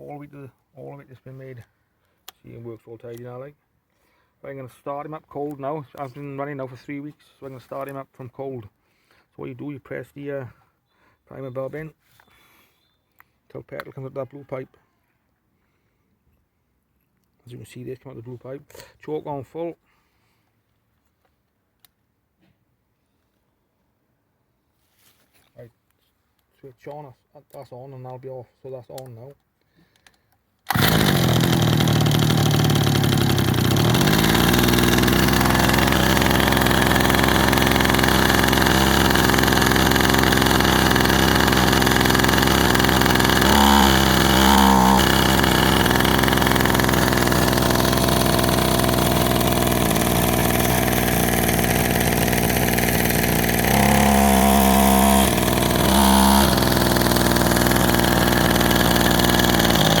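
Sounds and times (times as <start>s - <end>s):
hedge trimmer engine idling: 30.7s - 60.0s.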